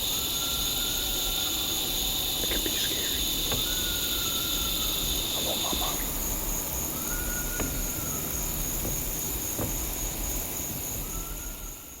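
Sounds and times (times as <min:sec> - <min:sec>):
faint whistle-like tone: 0:00.0 - 0:01.8, 0:02.9 - 0:05.2, 0:06.8 - 0:08.8, 0:10.9 - 0:12.0
insects buzzing: 0:00.0 - 0:12.0.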